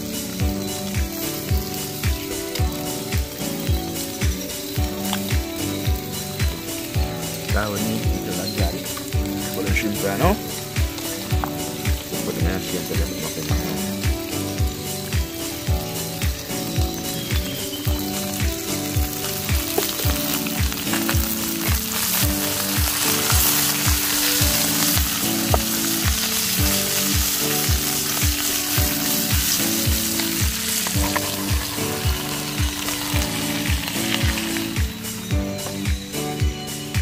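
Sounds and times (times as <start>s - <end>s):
food sizzling in hot oil: 0.0s - 37.0s
music with kick drum beat: 0.0s - 37.0s.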